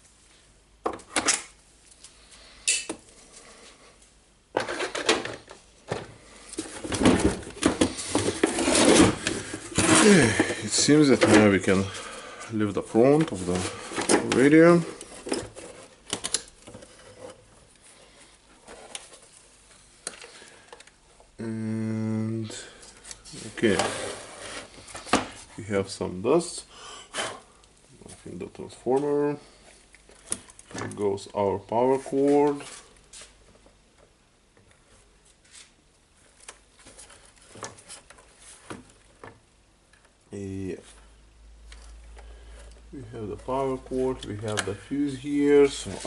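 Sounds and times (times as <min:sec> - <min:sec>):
clicks and rustles of handling: 0:04.0 - 0:21.4, 0:27.6 - 0:40.2, 0:40.8 - 0:46.0.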